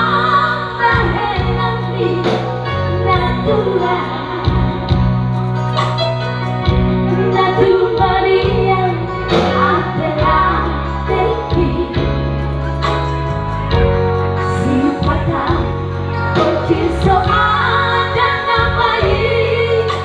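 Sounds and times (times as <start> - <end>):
woman singing: 0.0 - 4.9, 7.1 - 12.2, 14.5 - 20.0
held bass notes: 0.0 - 20.0.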